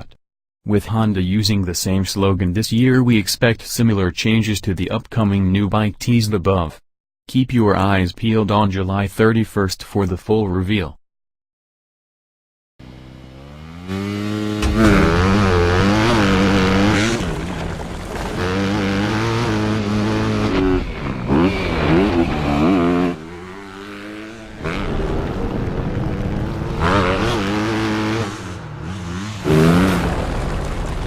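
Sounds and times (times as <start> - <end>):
motocross bike engine revving: 12.8 - 30.3.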